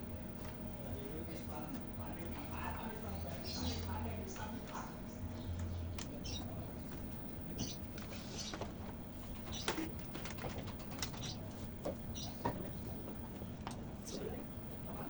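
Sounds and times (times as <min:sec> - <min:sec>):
steady low hum: 0:00.0 - 0:15.0
birds calling and cooing: 0:02.8 - 0:04.2, 0:04.9 - 0:13.4.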